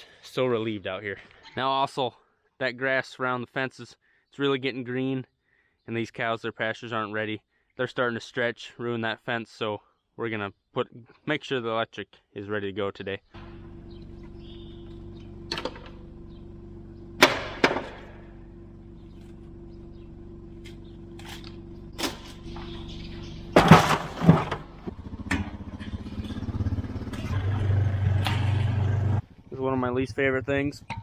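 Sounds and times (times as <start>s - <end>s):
steady low hum: 13.4s - 24.9s
engine running: 13.4s - 29.7s.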